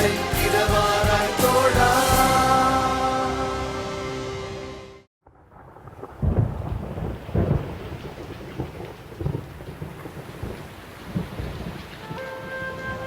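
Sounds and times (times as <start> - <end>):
heavy rain: 0.0 - 4.5, 5.3 - 13.0
thunder rumbling: 5.2 - 13.0.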